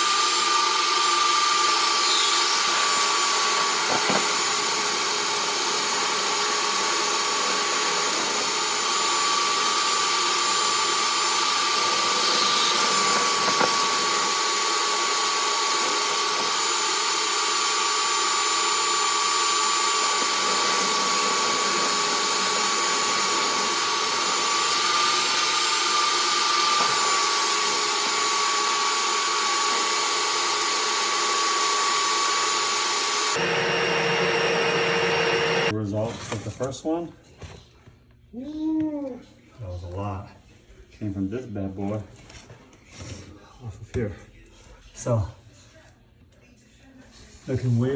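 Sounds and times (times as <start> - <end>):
motor running with rushing air: 1.5 - 35.7.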